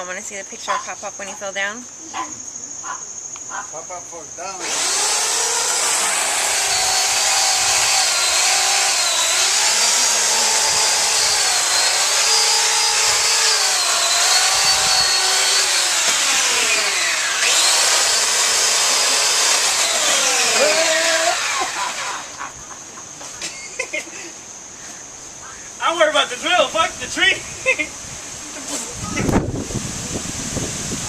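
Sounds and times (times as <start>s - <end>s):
power tool cutting wood: 4.6s - 22.4s.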